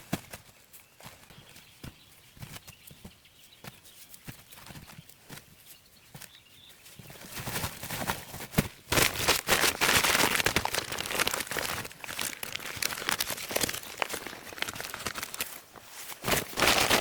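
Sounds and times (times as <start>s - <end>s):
dense rustling and crackling: 6.9s - 17.0s.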